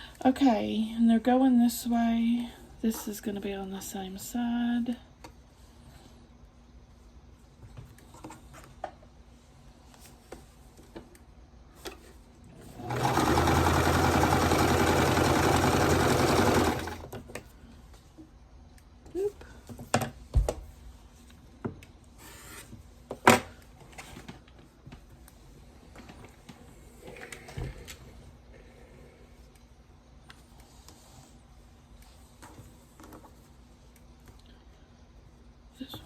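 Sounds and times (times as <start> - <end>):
sewing machine running: 12.6 - 17.2.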